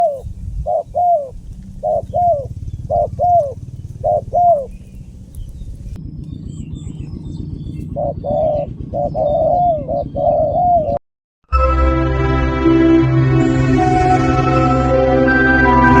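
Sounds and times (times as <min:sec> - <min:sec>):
dove cooing: 0:00.0 - 0:05.4, 0:07.8 - 0:11.0
steady low hum: 0:00.0 - 0:11.0.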